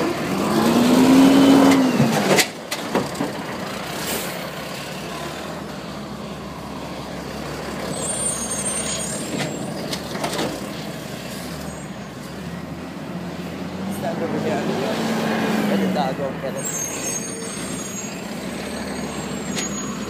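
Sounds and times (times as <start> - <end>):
thin high squeal: 7.9 - 9.7, 16.6 - 20.0.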